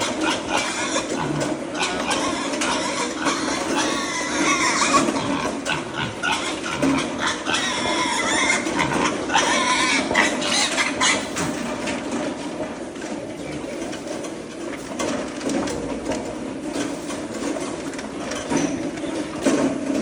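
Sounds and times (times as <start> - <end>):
piglets grunting and squealing: 0.0 - 11.7.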